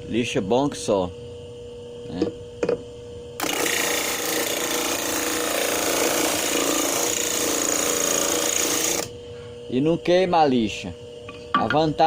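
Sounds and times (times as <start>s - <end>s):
faint motor whine: 0.0s - 12.0s
wood sanding on disc sander: 3.5s - 9.0s.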